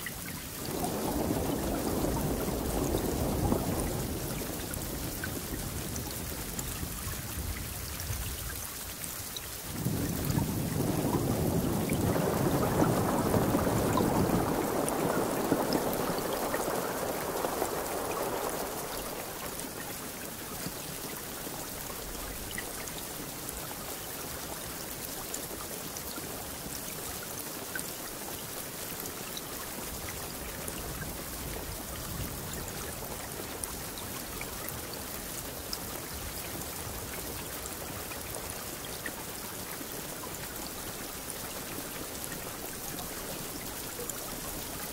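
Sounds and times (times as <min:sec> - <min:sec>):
rain falling: 0:00.0 - 0:44.9
thunder rumbling: 0:00.6 - 0:08.3, 0:09.7 - 0:20.7.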